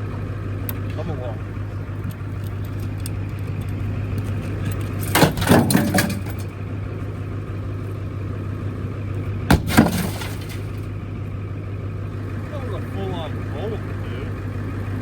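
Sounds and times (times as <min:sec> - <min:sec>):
engine idling hum: 0:00.0 - 0:15.0
metal object hitting window glass: 0:05.0 - 0:06.5, 0:09.5 - 0:10.8.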